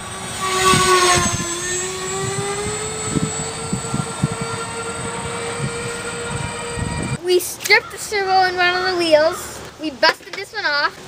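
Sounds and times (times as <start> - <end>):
model airplane motor droning: 0.0 - 7.2
wind rumbling on microphone: 0.0 - 7.2.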